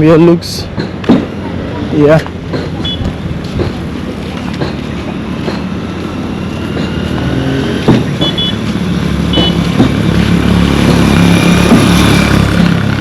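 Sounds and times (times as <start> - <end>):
vehicle engine approaching: 1.3 - 13.0
short high beeps: 2.8 - 3.1, 8.2 - 8.6.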